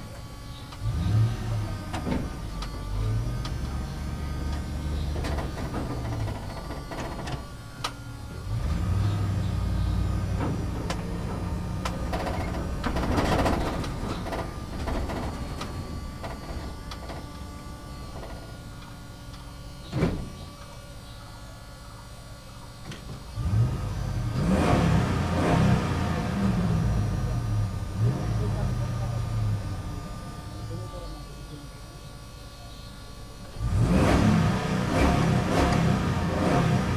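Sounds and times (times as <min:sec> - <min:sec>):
backhoe loader engine running: 0:00.0 - 0:36.9.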